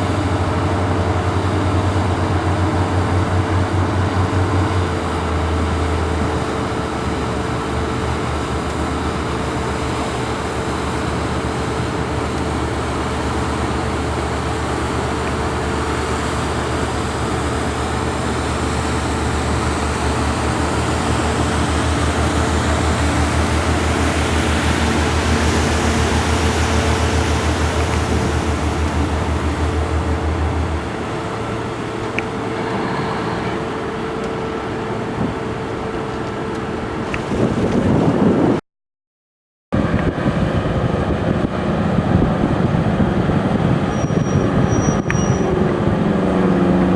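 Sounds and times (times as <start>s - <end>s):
boat engine droning: 0.0s - 38.6s, 39.8s - 46.9s.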